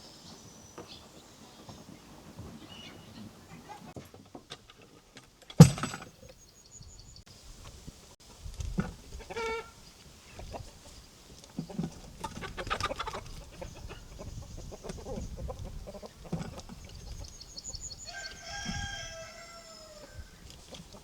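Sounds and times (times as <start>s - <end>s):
chickens clucking: 8.9s - 17.8s
rooster crowing: 18.0s - 20.4s.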